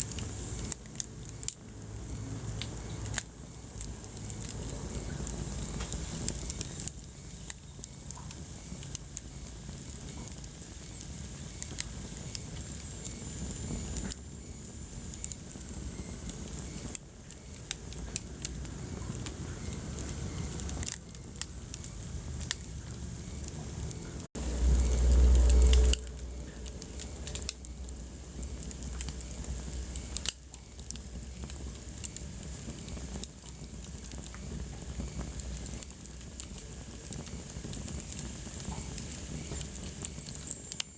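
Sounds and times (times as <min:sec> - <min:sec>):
low rumble of flames: 0:00.0 - 0:40.9
wood fire crackling and popping: 0:00.0 - 0:40.9
loud low rumble: 0:17.9 - 0:29.8.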